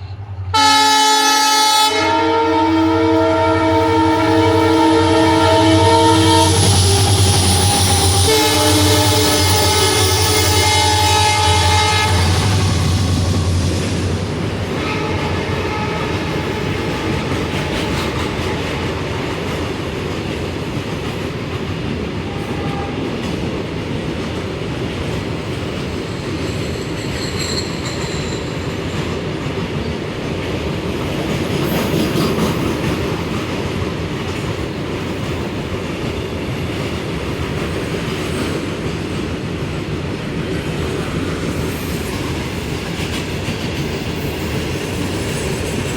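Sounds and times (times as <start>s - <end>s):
locomotive horn: 0.5s - 19.0s
train wheels clattering on rails: 3.6s - 45.9s.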